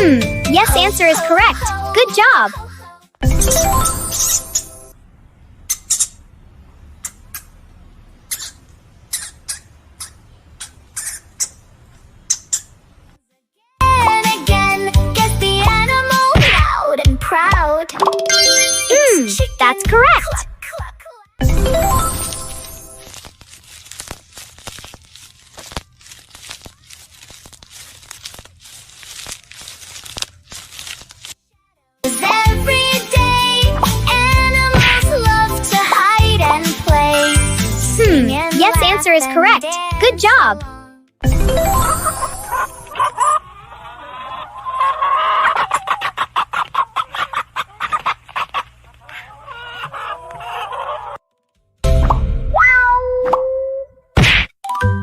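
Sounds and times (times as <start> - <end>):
plastic bags crinkling: 22.0 - 31.5
chickens clucking: 42.6 - 51.2.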